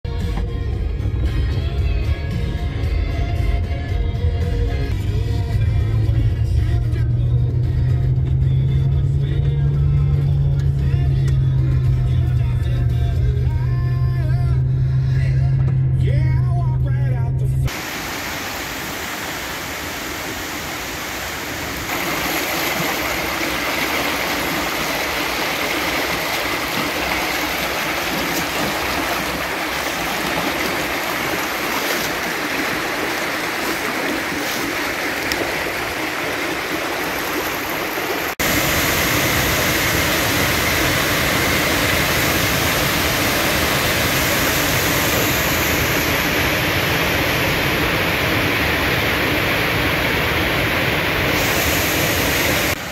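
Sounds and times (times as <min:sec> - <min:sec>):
small waterfall splashing: 0:17.7 - 0:52.9.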